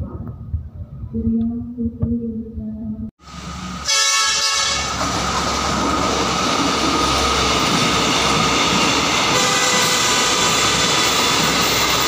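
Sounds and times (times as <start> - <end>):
train wheels rumbling on rail: 3.2 - 12.0.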